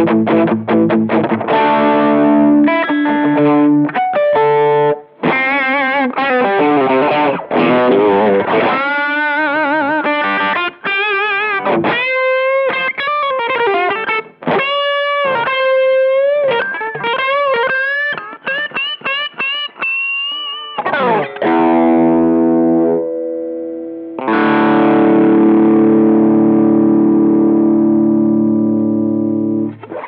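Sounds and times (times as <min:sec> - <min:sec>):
overdriven electric guitar lead: 0:00.0 - 0:30.0
strummed guitar chord: 0:21.0 - 0:30.0.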